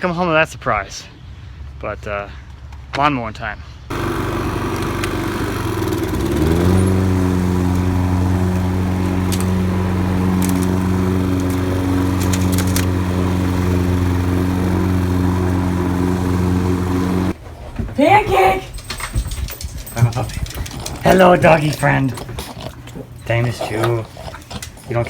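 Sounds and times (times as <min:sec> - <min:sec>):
lawn mower engine running: 0:03.9 - 0:17.4.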